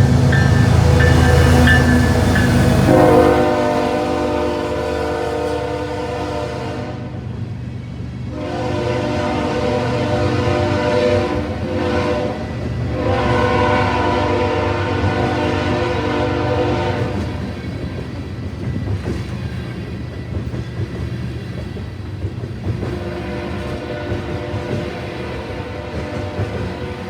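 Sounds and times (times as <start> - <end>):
locomotive air horn blasts: 0.0 - 7.2, 8.3 - 17.4, 22.9 - 27.0
train rumbling: 0.0 - 27.0.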